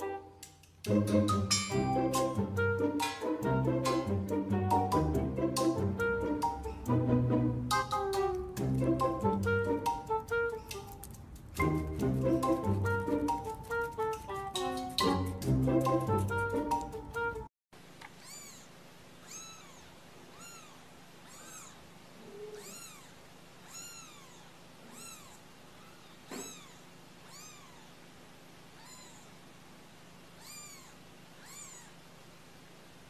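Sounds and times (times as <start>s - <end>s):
kittens mewing: 18.2s - 28.1s, 28.7s - 29.4s, 30.3s - 32.1s.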